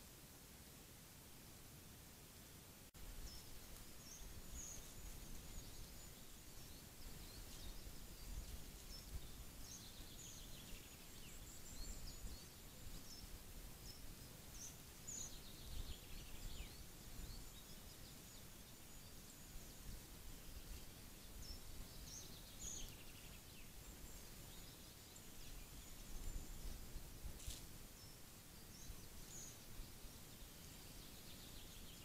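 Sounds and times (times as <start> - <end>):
small birds chirping: 3.0 - 32.0.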